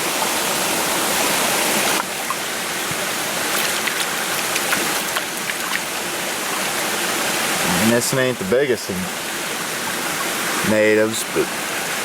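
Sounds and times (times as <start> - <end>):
stream rushing over rocks: 0.0 - 12.0
small splashes: 1.7 - 7.2.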